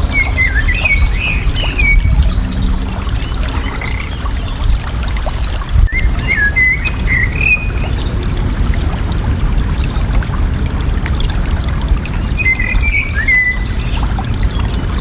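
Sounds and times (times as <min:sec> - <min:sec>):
bird singing: 0:00.0 - 0:04.6, 0:05.8 - 0:08.2, 0:12.2 - 0:14.8
water trickling and pouring: 0:00.0 - 0:15.0.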